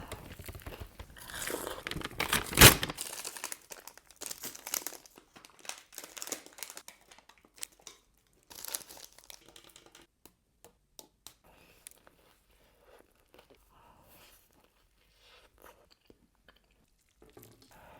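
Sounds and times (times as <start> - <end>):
wrapper crinkling and tearing: 0.0 - 10.0.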